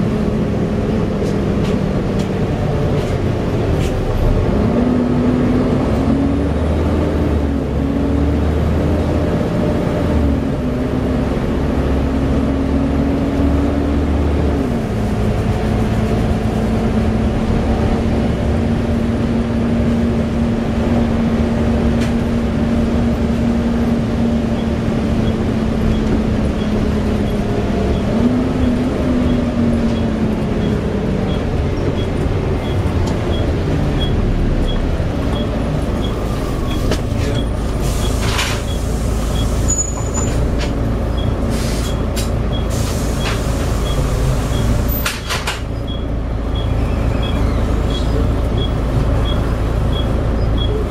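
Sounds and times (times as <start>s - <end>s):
bus engine droning: 0.0s - 50.9s.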